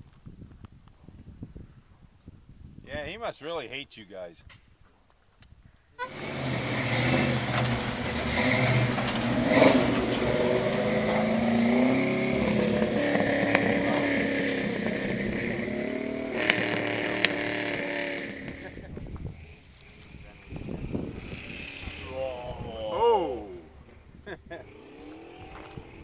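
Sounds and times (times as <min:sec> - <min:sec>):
truck engine revving hard: 0:06.0 - 0:18.9, 0:20.8 - 0:23.8, 0:24.5 - 0:26.0.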